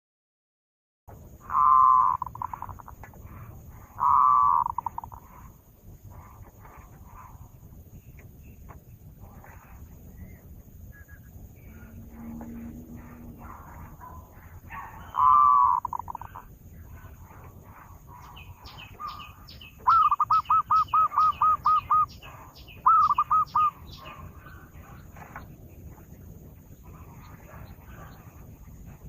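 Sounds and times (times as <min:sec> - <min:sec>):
dove calling: 0:01.1 - 0:29.0
small birds chirping: 0:01.1 - 0:29.0.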